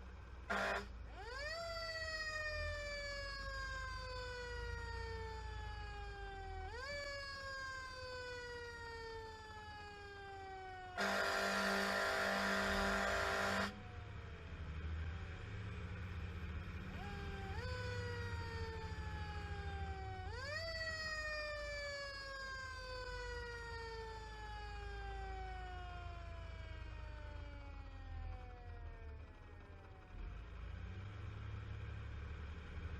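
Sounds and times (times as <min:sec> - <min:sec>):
fire engine rumble: 0:00.0 - 0:32.9
air horn blast: 0:00.5 - 0:00.9, 0:11.0 - 0:13.7.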